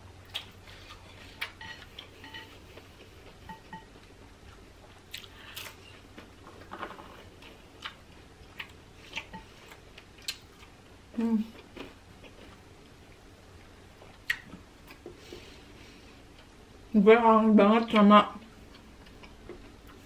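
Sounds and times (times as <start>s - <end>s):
chewing and lip smacks: 0.2s - 2.1s, 4.0s - 5.8s, 7.8s - 10.8s, 14.0s - 15.1s.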